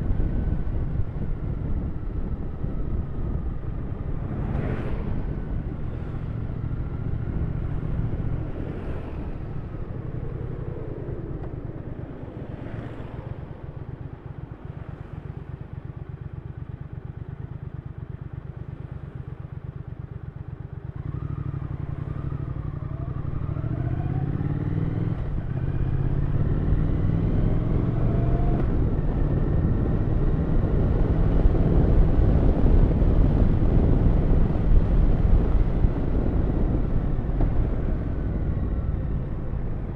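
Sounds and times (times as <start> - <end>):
motorcycle engine revving: 14.7 - 39.9.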